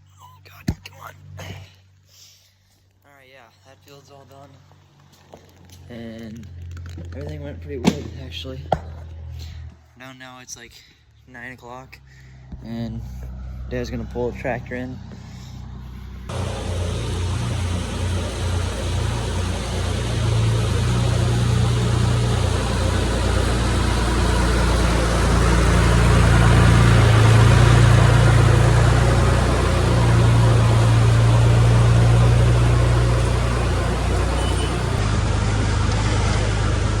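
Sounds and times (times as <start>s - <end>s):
tractor engine throbbing: 16.3s - 37.0s.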